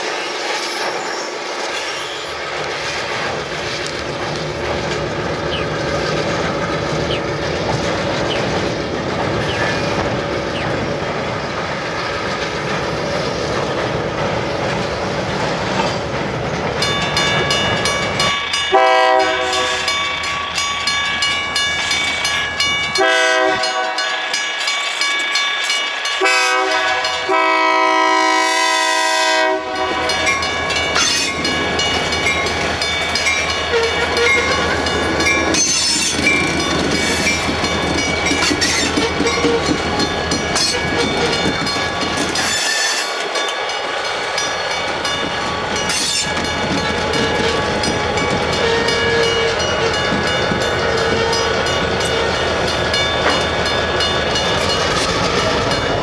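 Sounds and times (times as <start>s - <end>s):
diesel locomotive engines: 0.0s - 56.0s
crossing bell ringing: 16.8s - 56.0s
locomotive horn blowing: 18.7s - 20.0s, 23.0s - 24.2s, 26.2s - 30.3s, 33.7s - 34.8s, 48.5s - 50.1s, 50.9s - 52.4s
wheels clicking over rail joints: 29.6s - 56.0s.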